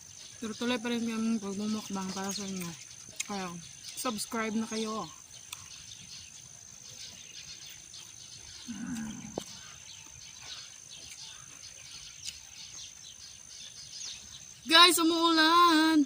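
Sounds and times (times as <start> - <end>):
faint chirps: 0.0 - 16.0
low animal call: 8.5 - 9.9.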